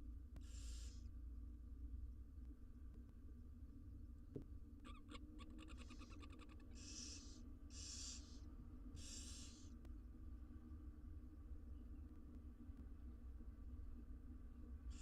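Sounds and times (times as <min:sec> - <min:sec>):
owl nestlings hissing: 0:00.4 - 0:01.1, 0:05.6 - 0:09.8.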